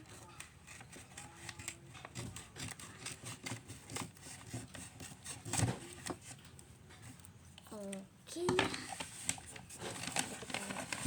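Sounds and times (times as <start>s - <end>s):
packaging rustling: 8.5s - 11.0s.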